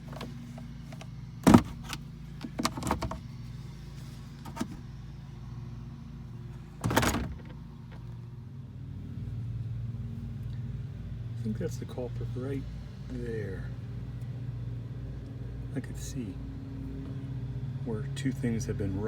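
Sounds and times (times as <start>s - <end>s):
gear shifter squeaking and clicking: 0.0s - 3.3s, 4.4s - 4.9s
low hum of truck engine: 0.0s - 19.0s.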